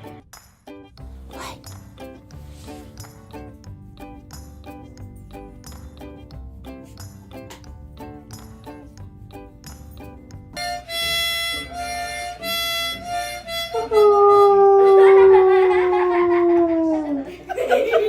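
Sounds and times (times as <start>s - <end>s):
harmonica held notes: 10.6s - 15.4s
dog howling: 13.8s - 17.3s.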